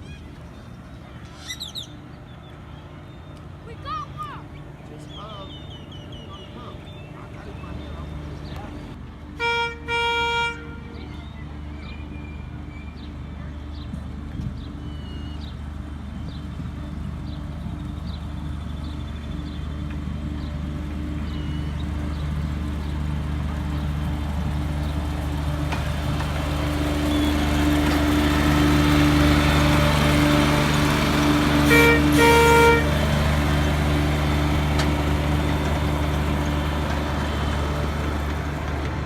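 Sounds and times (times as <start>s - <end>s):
small train engine running: 0.0s - 39.0s
train horn toots: 9.3s - 11.7s, 29.4s - 34.1s.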